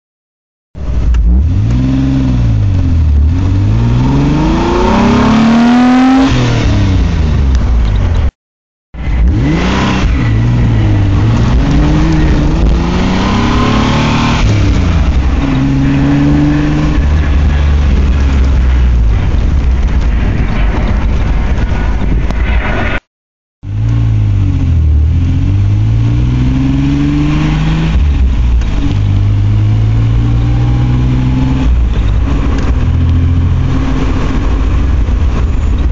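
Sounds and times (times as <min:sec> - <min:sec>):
car engine revving through gears: 0:00.9 - 0:07.3, 0:09.0 - 0:18.7, 0:23.7 - 0:35.3.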